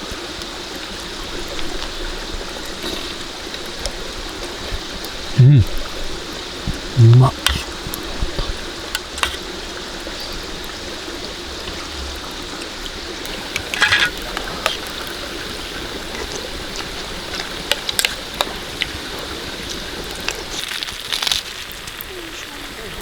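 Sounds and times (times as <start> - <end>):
steady rain falling: 0.0 - 23.0
sharp clicks and drips: 1.4 - 15.2.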